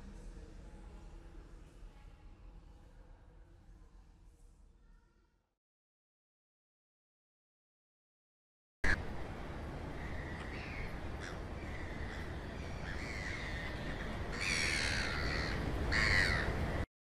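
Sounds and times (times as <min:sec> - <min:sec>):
steady low rumble: 0:00.0 - 0:05.0
birds calling: 0:09.9 - 0:16.8.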